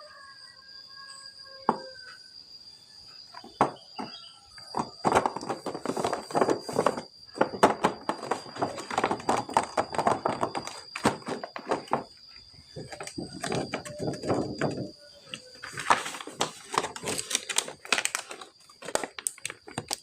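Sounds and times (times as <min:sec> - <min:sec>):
plastic and cardboard crinkling: 0:04.7 - 0:20.0.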